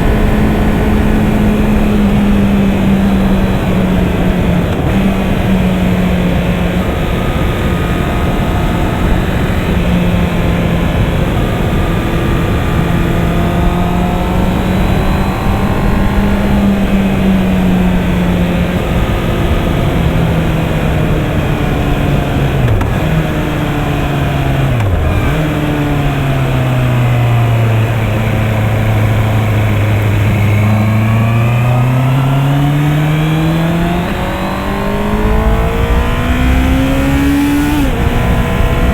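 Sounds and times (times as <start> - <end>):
motorcycle engine cruising: 0.0 - 38.9
wind rush: 32.2 - 38.9.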